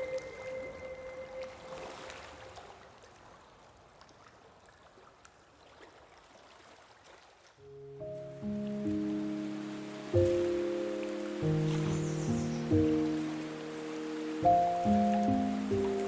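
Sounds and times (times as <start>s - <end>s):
music piece: 0.0s - 2.4s, 7.7s - 16.0s
rain patter with drips: 8.0s - 16.0s.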